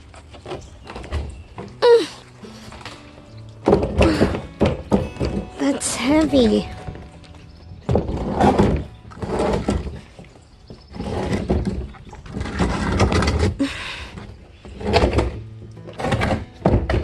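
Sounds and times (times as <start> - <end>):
heavy objects knocking and thudding: 3.6 - 7.0.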